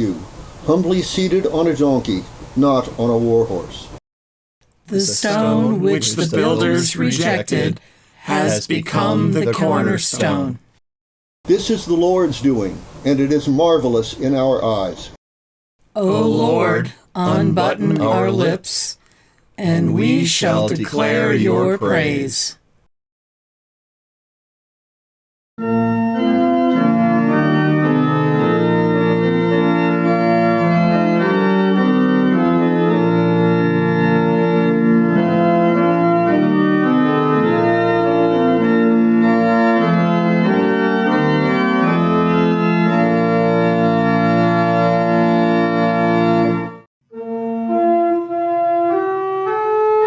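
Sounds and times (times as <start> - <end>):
organ playing held chords: 4.9 - 10.6, 16.1 - 18.6, 25.6 - 50.0.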